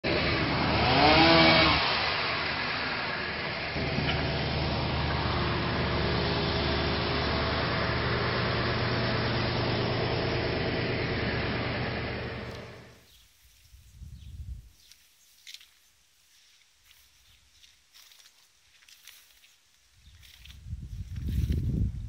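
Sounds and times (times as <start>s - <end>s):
engine running: 0.0s - 13.1s.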